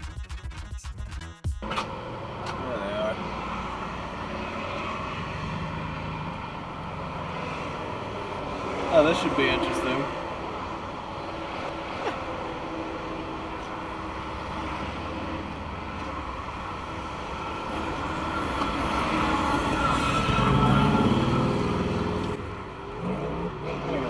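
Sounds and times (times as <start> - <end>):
vehicle engine rumble: 0.0 - 24.0.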